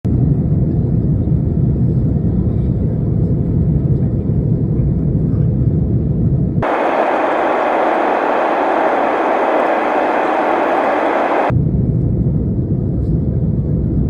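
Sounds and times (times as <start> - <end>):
wind buffeting microphone: 6.6 - 11.5.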